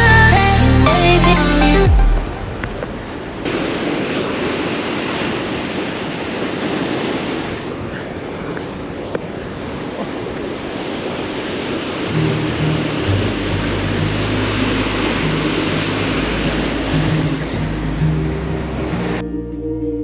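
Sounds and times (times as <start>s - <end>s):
fast-flowing water rushing: 3.4s - 19.2s.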